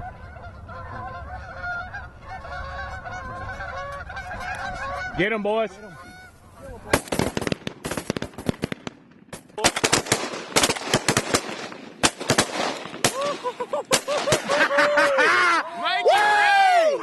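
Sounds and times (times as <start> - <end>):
geese honking: 0.0 - 7.2
shotgun fire: 6.9 - 14.6.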